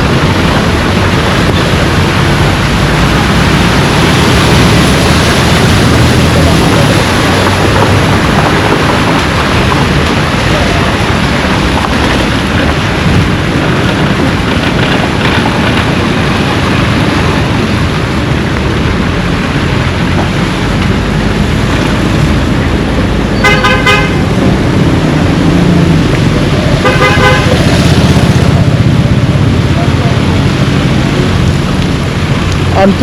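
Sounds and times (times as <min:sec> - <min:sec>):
loud steady rush of noise: 0:00.0 - 0:33.0
vehicle horn: 0:23.4 - 0:24.4, 0:26.8 - 0:27.8.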